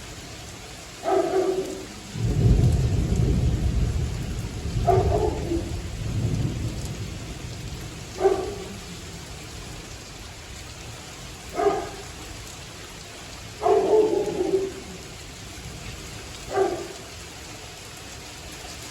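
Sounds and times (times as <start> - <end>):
steady rain falling: 0.0 - 18.9
dog barking: 1.0 - 2.0, 4.8 - 5.8, 8.1 - 8.9, 11.5 - 12.2, 13.6 - 15.0, 16.4 - 17.1
low thunder rumble: 1.0 - 9.9.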